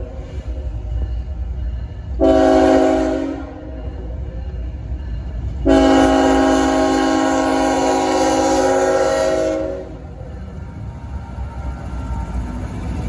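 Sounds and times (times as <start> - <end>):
passing train rumble: 0.0 - 13.0
locomotive air horn blast: 2.2 - 3.8, 5.6 - 10.0.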